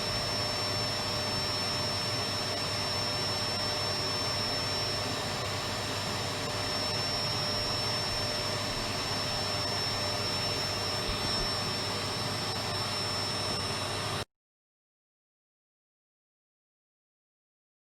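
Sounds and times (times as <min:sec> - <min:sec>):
vacuum cleaner running: 0:00.0 - 0:14.3.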